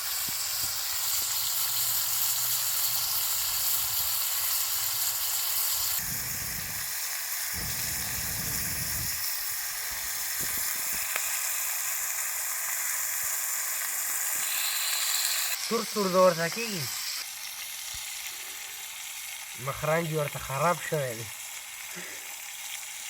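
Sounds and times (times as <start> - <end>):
meat sizzling in hot oil: 0.0 - 23.0
low rumble: 6.0 - 10.9.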